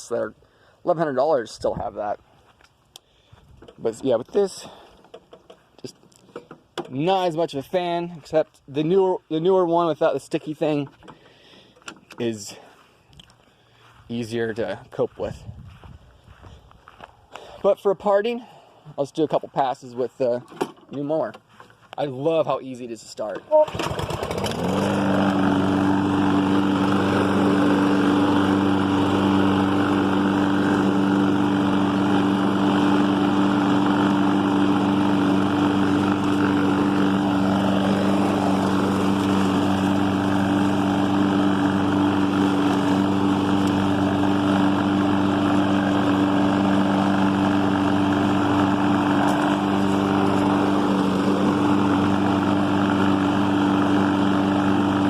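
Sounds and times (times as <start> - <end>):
lawn mower engine running: 23.2 - 55.0.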